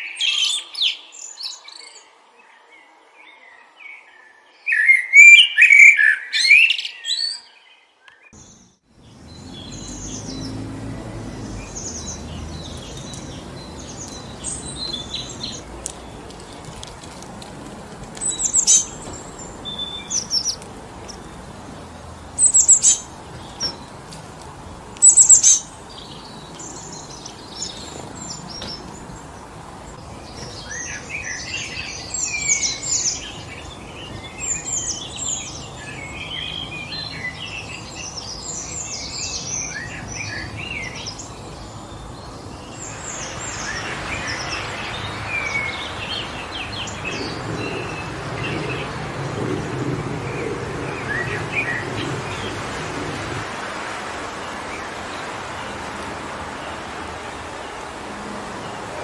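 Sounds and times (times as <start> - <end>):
songbirds chirping: 0.0 - 59.0
wind through trees: 0.0 - 59.0.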